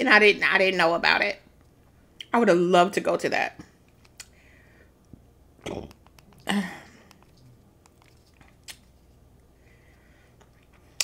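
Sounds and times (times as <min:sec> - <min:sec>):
short breaths: 0:04.3 - 0:05.0, 0:09.6 - 0:10.4
person chewing food: 0:05.0 - 0:09.4
wet mouth clicks: 0:05.6 - 0:08.9.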